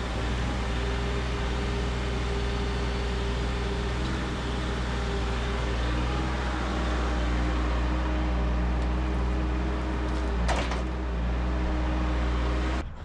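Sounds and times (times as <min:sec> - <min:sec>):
machine scraping: 0:00.0 - 0:12.8
machine engine humming: 0:00.0 - 0:12.9.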